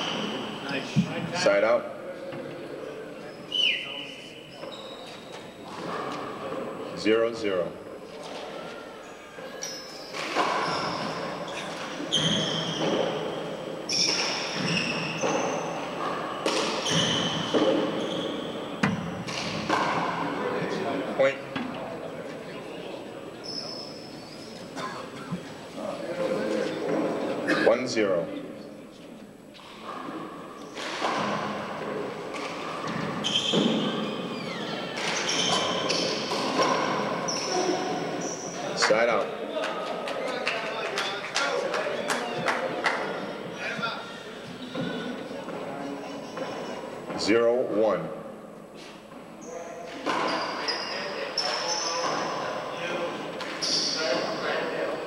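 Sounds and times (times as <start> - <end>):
sneaker squeaks on court floor: 0.0 - 0.7, 3.2 - 6.2, 8.3 - 20.3, 23.4 - 25.4, 32.3 - 38.8, 46.0 - 46.9, 49.4 - 52.7, 53.4 - 54.7.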